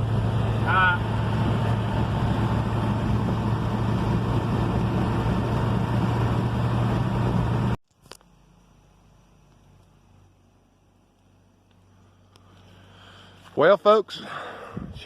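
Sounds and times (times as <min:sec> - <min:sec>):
road noise: 0:00.0 - 0:07.8
truck engine drone: 0:00.0 - 0:13.6.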